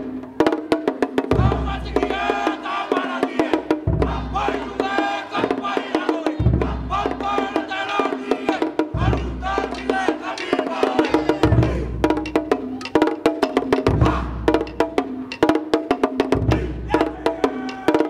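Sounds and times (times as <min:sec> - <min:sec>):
deep bass drum beat: 0:01.3 - 0:02.2, 0:03.6 - 0:05.2, 0:06.4 - 0:07.8, 0:08.8 - 0:10.1, 0:10.9 - 0:12.6, 0:13.4 - 0:15.1, 0:16.2 - 0:17.9
voices singing: 0:01.3 - 0:13.0, 0:13.6 - 0:14.8, 0:16.4 - 0:18.0.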